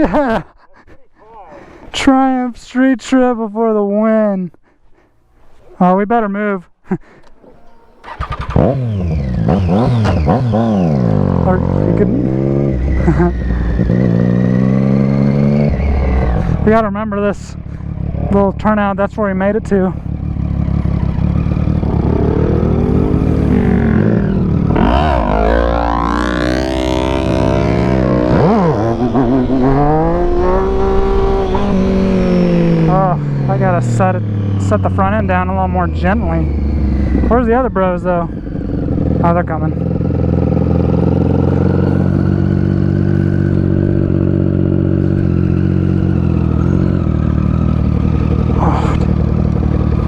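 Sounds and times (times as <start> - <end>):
motorcycle engine revving: 7.7 - 50.0
low wind rumble: 10.9 - 50.0.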